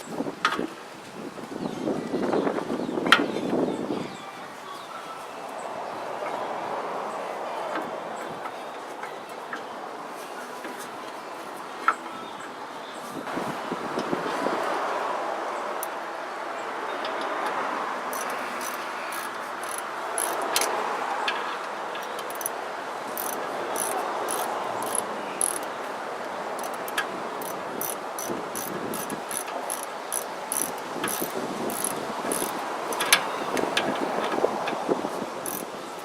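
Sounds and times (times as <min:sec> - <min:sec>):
ratchet wrench clicking: 0:18.1 - 0:20.7, 0:22.0 - 0:22.5, 0:23.2 - 0:25.6, 0:26.6 - 0:33.9, 0:35.4 - 0:35.6.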